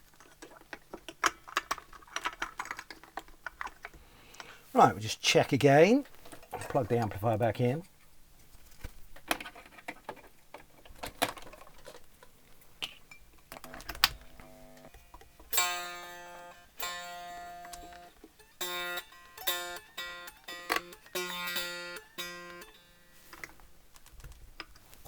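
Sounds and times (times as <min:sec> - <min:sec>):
electric guitar string plucked: 0:13.7 - 0:23.2.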